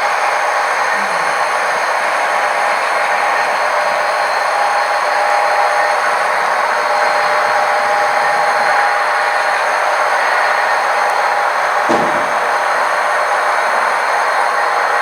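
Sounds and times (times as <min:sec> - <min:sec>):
model train rolling: 0:11.8 - 0:12.9
short knock: 0:11.9 - 0:12.8.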